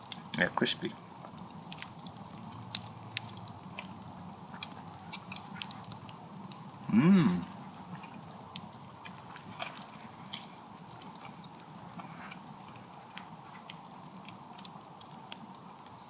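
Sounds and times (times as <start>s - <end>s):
person chewing: 1.3s - 15.4s.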